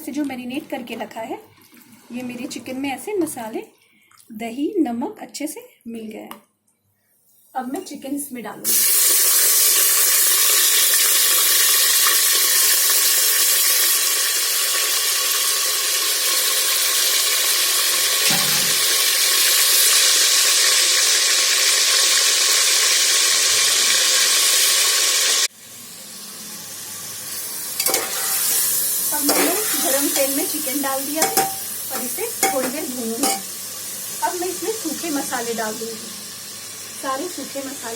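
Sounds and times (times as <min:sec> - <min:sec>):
chicken sizzling in hot oil: 0:08.6 - 0:37.9.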